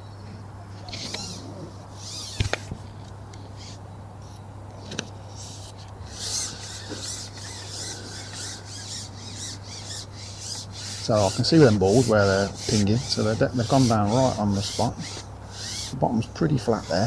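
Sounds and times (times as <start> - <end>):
steady low hum: 0.0 - 17.0
birds calling: 0.9 - 16.0
sharp clicks or knocks: 2.2 - 2.8.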